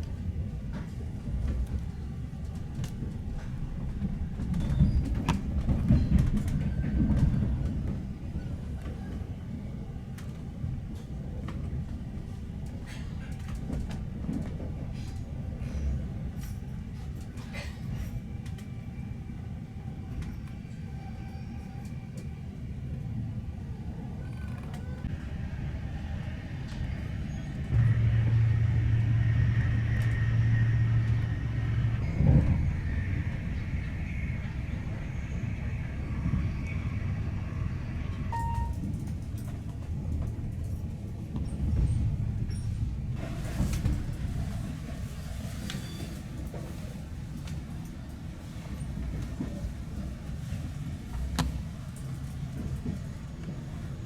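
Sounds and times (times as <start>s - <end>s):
train carriage rumbling on rails: 0.0s - 54.0s
short high beep: 38.3s - 38.8s.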